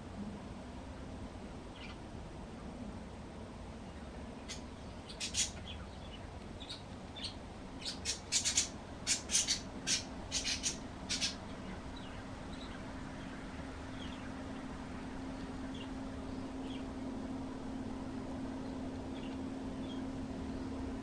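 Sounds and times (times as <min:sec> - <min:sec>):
faint steady hum: 0:00.0 - 0:21.0
small birds chirping: 0:01.7 - 0:02.0, 0:03.9 - 0:14.4.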